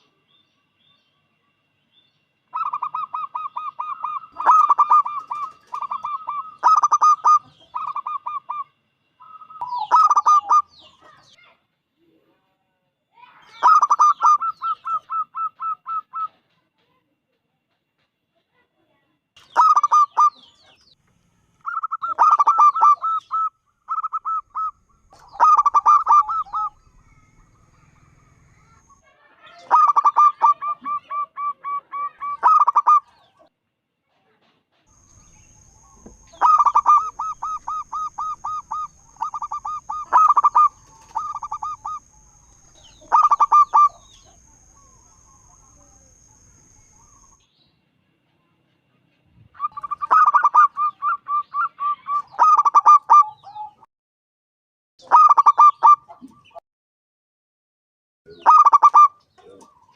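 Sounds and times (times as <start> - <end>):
dove cooing: 2.6 - 10.7, 13.6 - 16.3, 21.7 - 28.9, 29.6 - 33.1, 35.8 - 46.1, 49.6 - 53.8, 55.1 - 56.5, 58.3 - 59.9.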